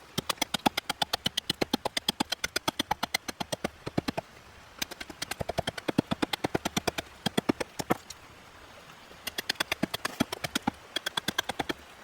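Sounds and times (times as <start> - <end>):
rapid knocking on a panel: 0.2 - 4.2, 4.8 - 8.0.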